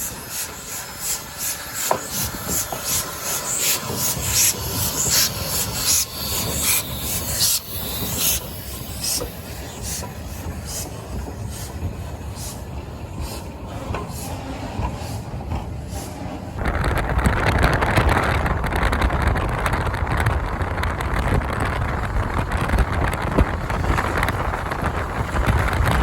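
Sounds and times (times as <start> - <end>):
steam locomotive chuffing: 0.0 - 18.8.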